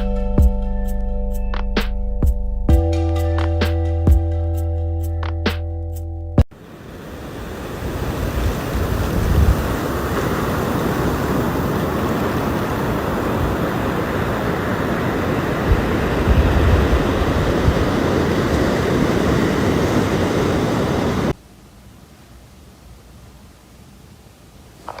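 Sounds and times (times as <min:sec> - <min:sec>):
wind buffeting microphone: 0:06.9 - 0:21.3
faint room hiss: 0:21.3 - 0:25.0.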